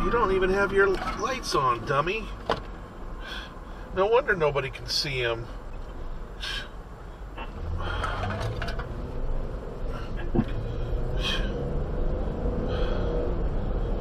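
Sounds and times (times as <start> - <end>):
road and engine rumble: 0.0 - 14.0.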